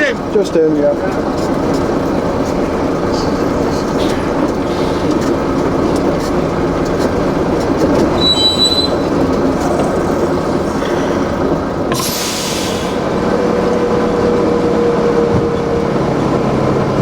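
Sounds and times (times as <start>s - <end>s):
heavy vehicle engine running: 0.0s - 17.0s
high-pitched squeal: 8.2s - 13.2s.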